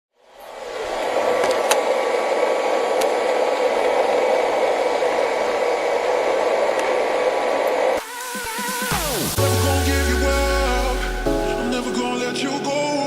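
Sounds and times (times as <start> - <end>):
electronic music: 8.0 - 13.0.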